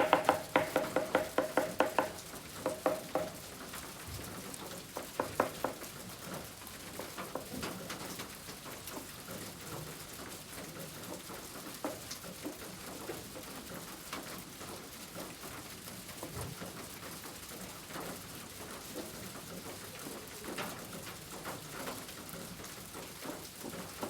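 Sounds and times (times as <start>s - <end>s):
rain pattering: 0.0s - 24.0s.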